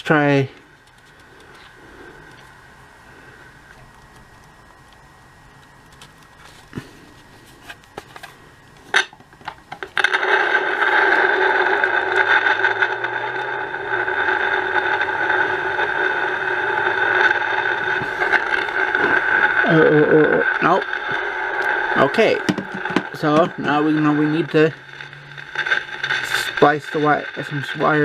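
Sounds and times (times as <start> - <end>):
toy speaker electronic buzz: 9.8 - 28.0.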